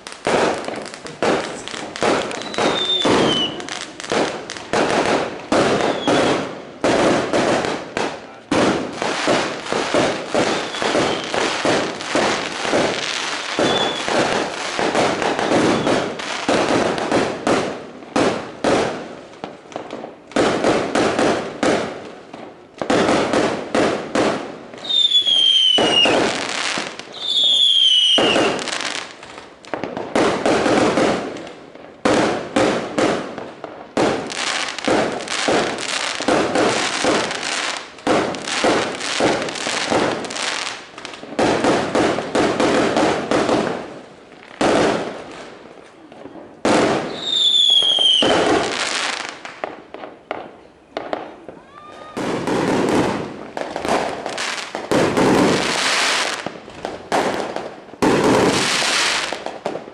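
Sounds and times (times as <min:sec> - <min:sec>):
fireworks bangs and crackles: 0:00.0 - 0:59.9
falling firework whistle: 0:01.5 - 0:03.7, 0:05.8 - 0:06.4, 0:10.4 - 0:11.5, 0:13.5 - 0:14.3, 0:15.5 - 0:16.2, 0:24.8 - 0:26.2, 0:27.1 - 0:28.7, 0:47.1 - 0:48.5, 0:51.5 - 0:52.5.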